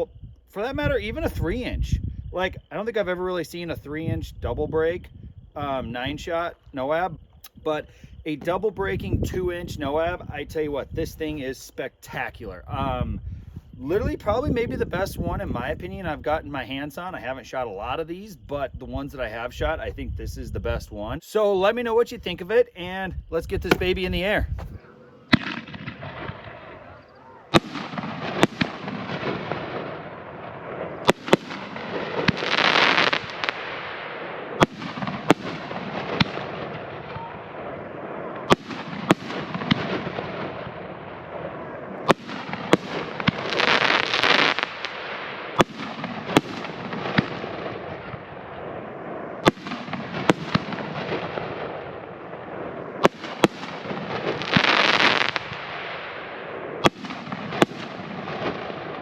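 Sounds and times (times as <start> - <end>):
firework booming reports: 22.2 - 59.0
firework hissing burst: 31.0 - 36.4.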